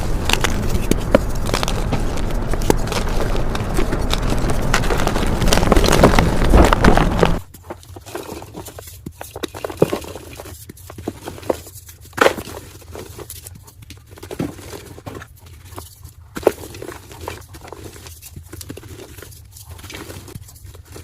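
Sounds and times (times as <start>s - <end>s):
chalk crunching by hand: 0.0s - 7.5s.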